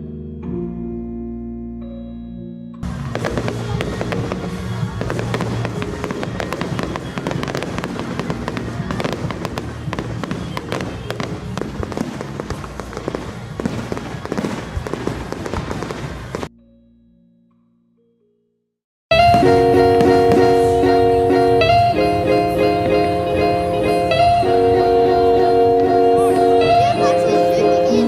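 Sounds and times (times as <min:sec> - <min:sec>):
music: 0:00.0 - 0:28.0
fireworks crackling and banging: 0:02.8 - 0:16.5, 0:19.2 - 0:21.1.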